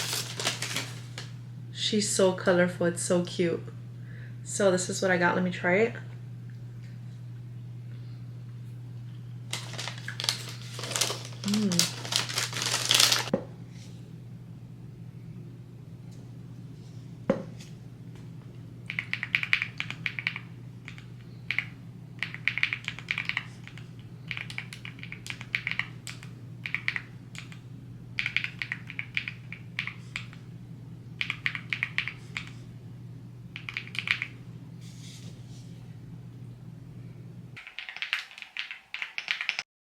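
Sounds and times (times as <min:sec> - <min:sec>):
steady low hum: 0:00.0 - 0:37.6
computer keyboard typing: 0:18.9 - 0:27.6, 0:28.2 - 0:30.4, 0:31.2 - 0:32.6, 0:33.6 - 0:34.4, 0:37.6 - 0:39.7.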